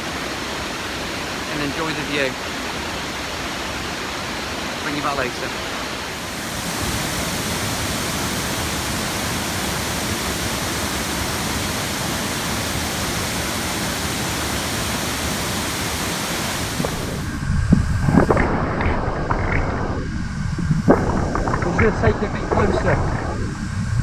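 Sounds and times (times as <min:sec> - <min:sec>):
waterfall rushing: 0:00.0 - 0:17.5
low thumps and rumbling: 0:16.8 - 0:24.0.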